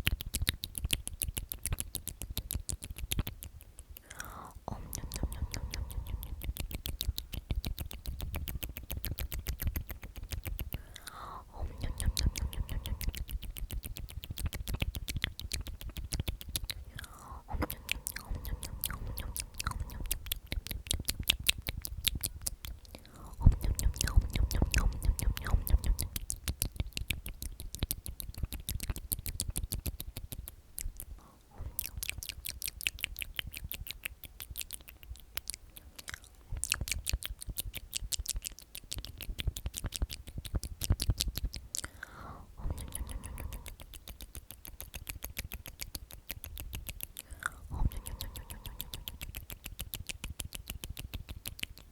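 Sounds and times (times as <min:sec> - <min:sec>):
wet mouth clicks and lip smacks: 0:00.0 - 0:51.9
person whispering: 0:04.0 - 0:08.9, 0:09.8 - 0:13.8, 0:14.4 - 0:26.4, 0:31.1 - 0:32.3, 0:41.8 - 0:44.5, 0:47.2 - 0:49.5.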